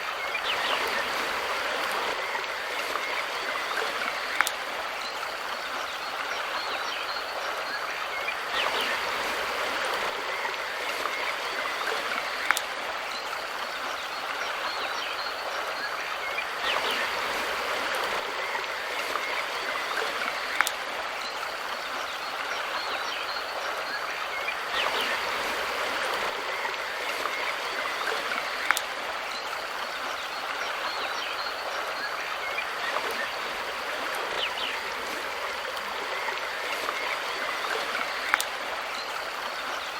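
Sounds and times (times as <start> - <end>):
river water rushing: 0.0 - 39.9
sharp tick: 38.3 - 38.5.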